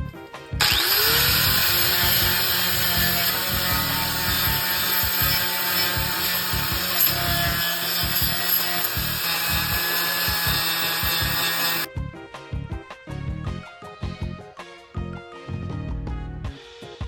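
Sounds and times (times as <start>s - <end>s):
angle grinder grinding steel: 0.6s - 11.9s.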